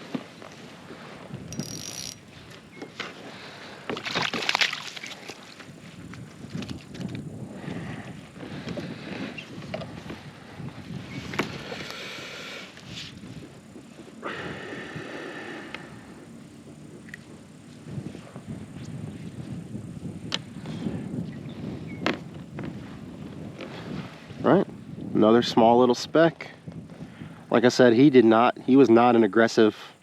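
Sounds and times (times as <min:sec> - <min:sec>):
water splashes: 0:03.9 - 0:05.7.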